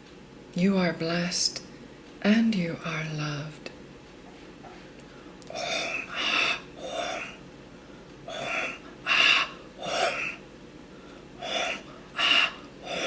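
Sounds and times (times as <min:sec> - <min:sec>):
person exhaling forcefully: 0:05.5 - 0:07.4, 0:08.3 - 0:10.4, 0:11.4 - 0:13.0.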